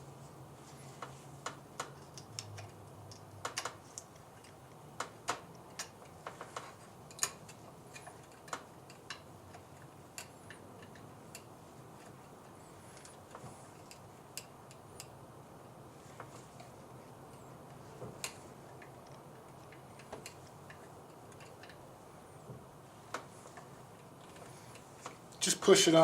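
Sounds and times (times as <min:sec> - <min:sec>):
metal parts clicking and tapping: 0:01.4 - 0:15.2, 0:17.3 - 0:21.8.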